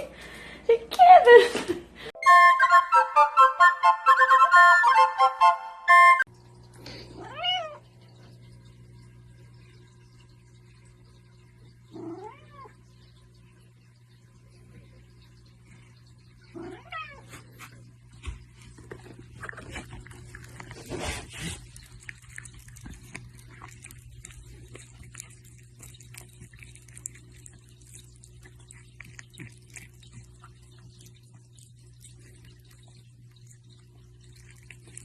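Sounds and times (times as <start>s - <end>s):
cat meowing: 7.2s - 7.8s, 12.0s - 12.7s, 16.6s - 17.3s.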